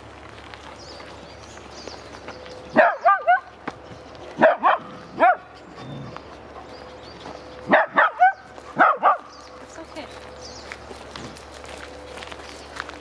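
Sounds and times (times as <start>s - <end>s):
dog barking: 2.8s - 3.5s, 4.4s - 5.5s, 7.7s - 9.3s.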